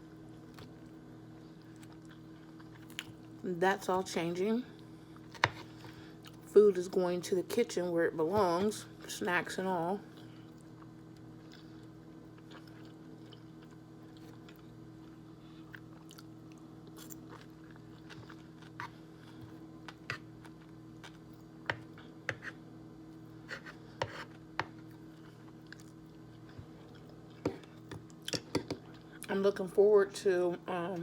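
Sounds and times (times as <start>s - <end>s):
steady low hum: 0.0s - 31.0s
person chewing crunchy salad: 1.6s - 3.4s, 10.1s - 22.6s, 23.3s - 29.3s.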